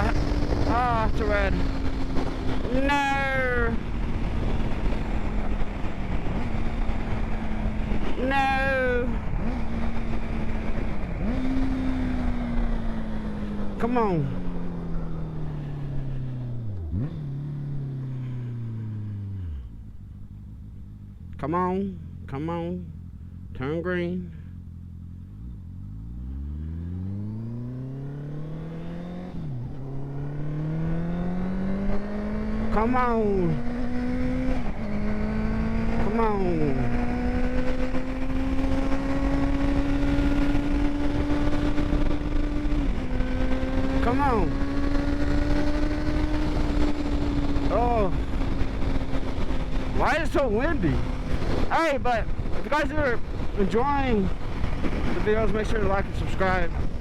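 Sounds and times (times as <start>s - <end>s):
wind noise: 0.0s - 19.1s, 27.2s - 57.0s
motorcycle engine accelerating: 0.0s - 57.0s
motorcycle engine idling: 12.6s - 25.9s.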